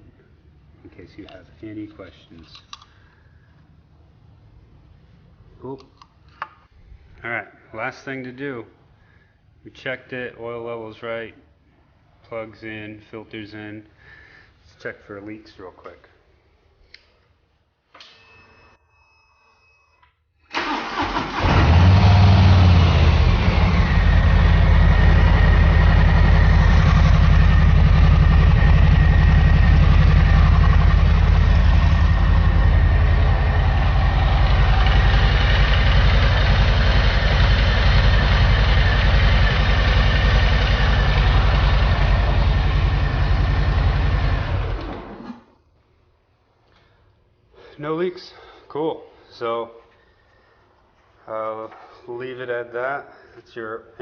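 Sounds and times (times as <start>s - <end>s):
motorcycle engine starting and idling: 20.5s - 45.6s.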